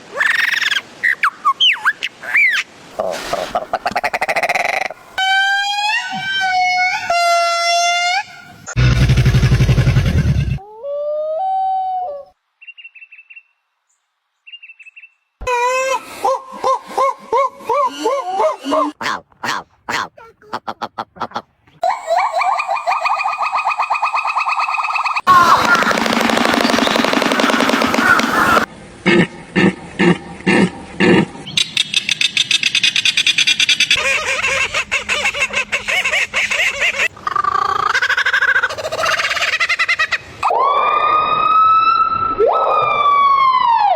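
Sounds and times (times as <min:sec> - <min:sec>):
upward stepping call: 0:25.3 - 0:28.7.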